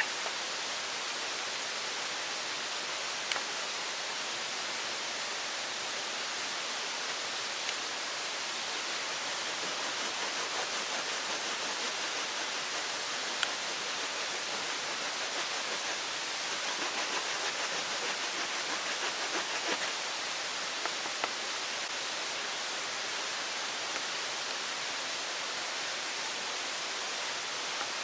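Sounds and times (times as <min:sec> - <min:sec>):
faint ticks: 0:03.3 - 0:03.5
water rushing: 0:04.6 - 0:22.4.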